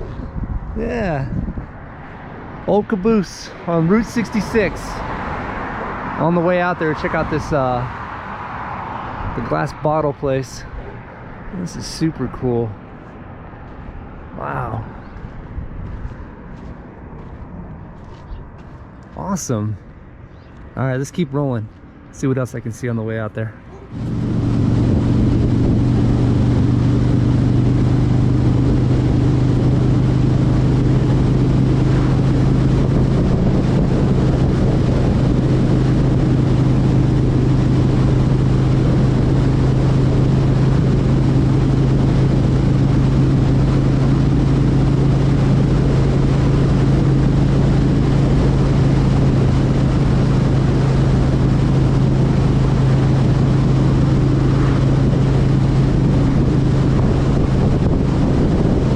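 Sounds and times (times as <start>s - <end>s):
motorcycle engine cruising: 23.6s - 58.9s.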